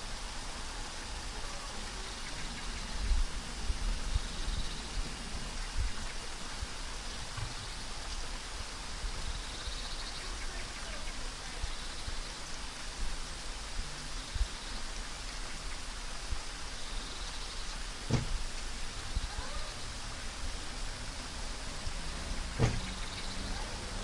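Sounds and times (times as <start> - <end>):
rain falling on leaves: 0.0 - 24.0
heavy drops thudding: 18.0 - 18.5, 22.5 - 23.0.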